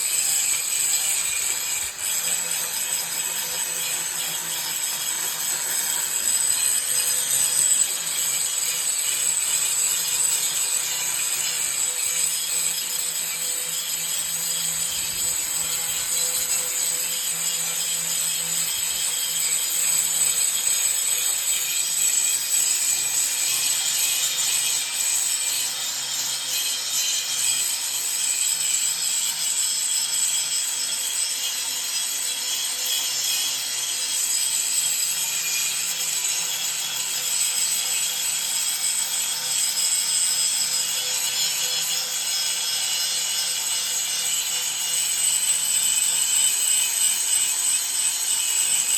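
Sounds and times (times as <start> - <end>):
grinder grinding metal: 0.0 - 48.9.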